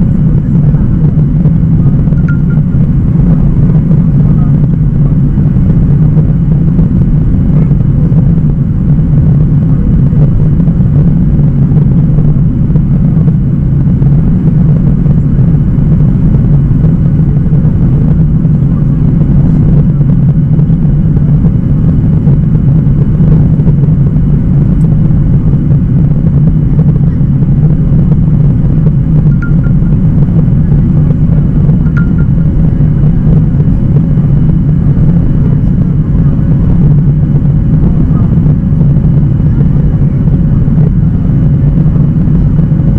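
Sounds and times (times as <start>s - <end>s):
jet engine rumble in cabin: 0.0s - 42.9s.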